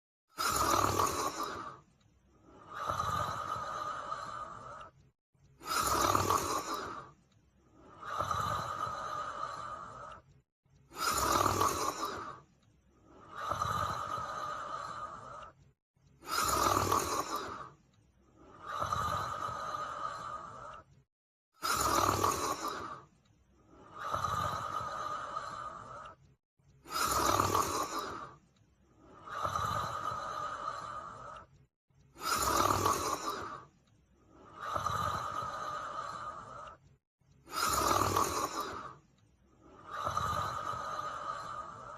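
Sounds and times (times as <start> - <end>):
dog snoring: 0.4 - 1.8, 5.6 - 7.1, 11.0 - 12.4, 16.2 - 17.7, 21.6 - 23.0, 26.8 - 28.3, 32.2 - 33.6, 37.5 - 38.9.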